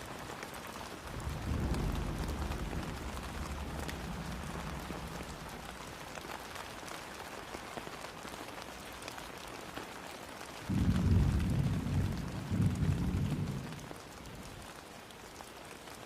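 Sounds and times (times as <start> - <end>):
steady rain: 0.0 - 16.0
deep rumble of thunder: 1.0 - 6.7, 10.7 - 14.7.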